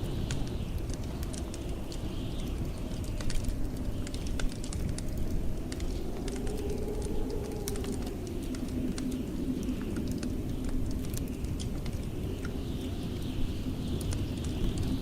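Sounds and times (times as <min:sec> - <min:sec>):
blizzard wind howling: 0:00.0 - 0:15.0
wood fire crackling: 0:00.0 - 0:15.0.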